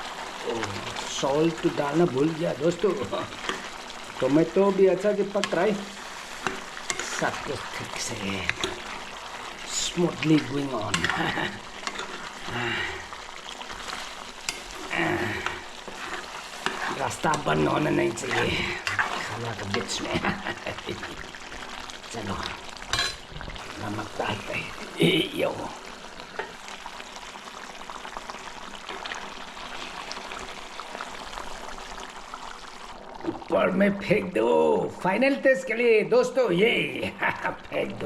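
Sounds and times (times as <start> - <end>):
curry sizzling in a pan: 0.0 - 38.0
spatula scraping pan: 2.7 - 3.9, 5.2 - 21.6, 22.9 - 25.0.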